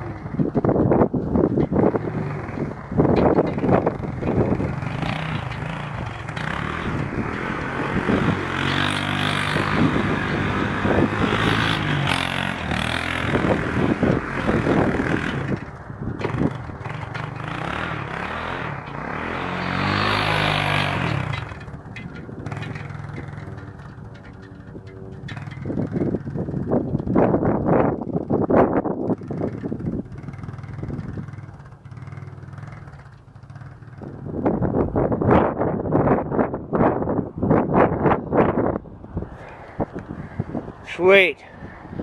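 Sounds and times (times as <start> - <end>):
quad engine revving: 0.0 - 34.8
person talking: 40.8 - 41.5.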